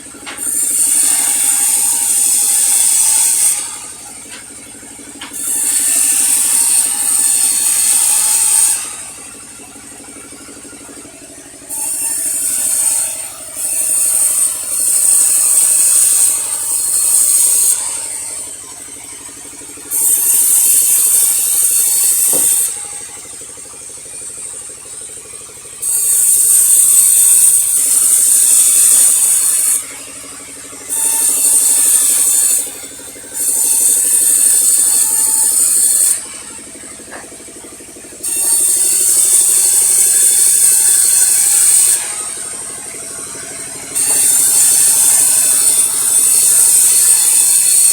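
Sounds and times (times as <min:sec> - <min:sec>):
saw blade rasping through wood: 0:00.0 - 0:47.9
sawmill machine running: 0:00.0 - 0:47.9.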